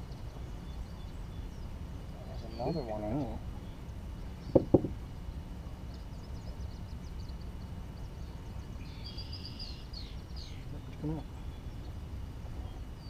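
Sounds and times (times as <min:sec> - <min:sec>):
bird song: 0:00.0 - 0:13.0
low outdoor rumble: 0:00.0 - 0:13.0
small birds chirping: 0:00.0 - 0:13.0.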